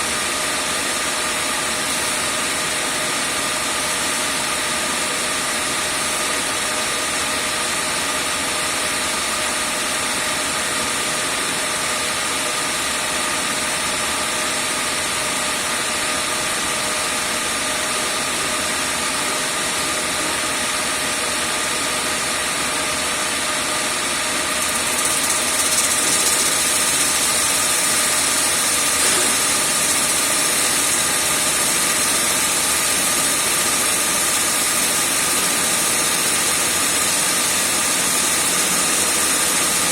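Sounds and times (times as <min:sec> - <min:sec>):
grinder motor whining: 0:24.5 - 0:36.5.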